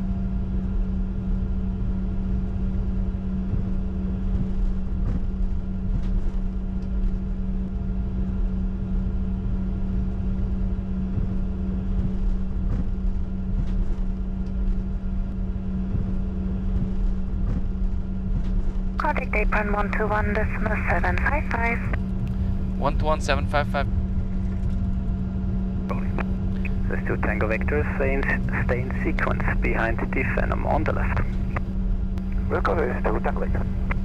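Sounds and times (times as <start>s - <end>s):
jet engines idling hum: 19.0s - 23.8s, 25.9s - 34.0s.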